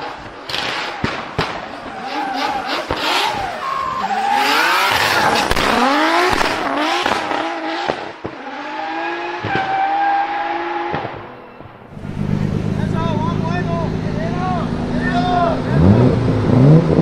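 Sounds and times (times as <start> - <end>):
car engine revving: 0.0 - 17.0
exhaust pops and bangs: 0.2 - 2.0, 5.3 - 8.4, 9.4 - 9.8, 10.9 - 11.7.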